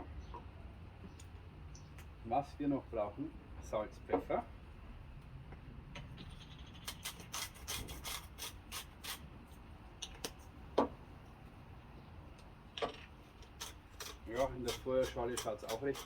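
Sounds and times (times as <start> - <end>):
grinder rasping: 6.8 - 9.2, 13.4 - 16.0.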